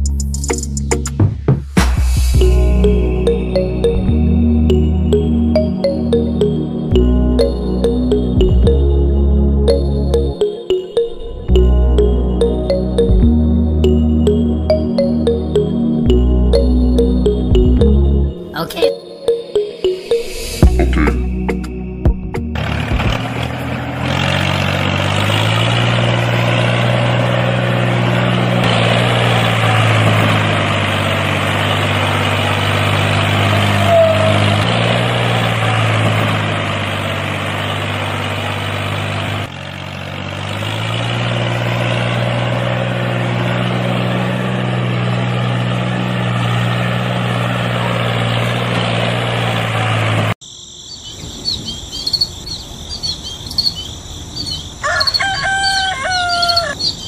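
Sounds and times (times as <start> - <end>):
tractor engine running: 0.0 - 18.7, 19.6 - 50.4
faint bird chirps: 50.8 - 55.2.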